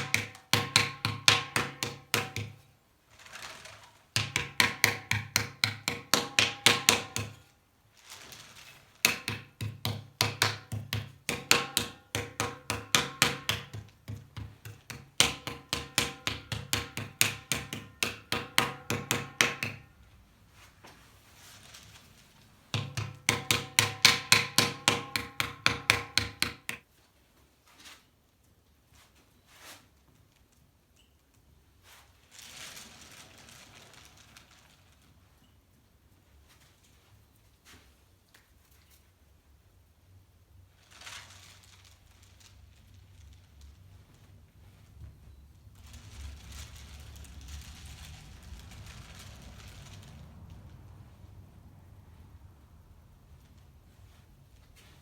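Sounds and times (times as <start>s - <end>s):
wooden paddle beating clay: 0.0s - 2.7s, 4.2s - 7.4s, 9.0s - 19.9s, 22.7s - 26.9s.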